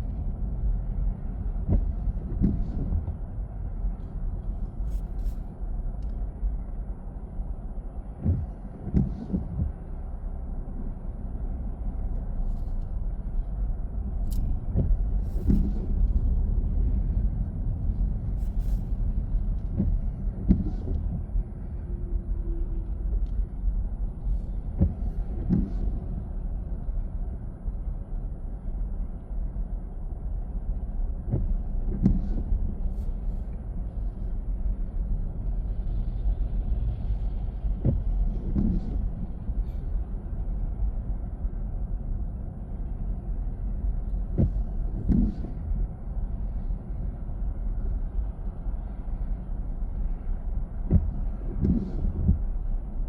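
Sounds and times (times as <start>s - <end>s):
road and tyre rumble: 0.0s - 53.0s.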